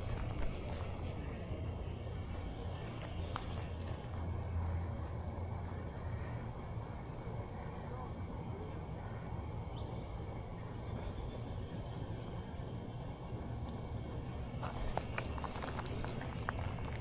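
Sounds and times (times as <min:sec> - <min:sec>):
low steady rumble: 0:00.0 - 0:08.0, 0:14.6 - 0:17.0
crickets trilling: 0:00.0 - 0:17.0
light clicks: 0:14.6 - 0:17.0.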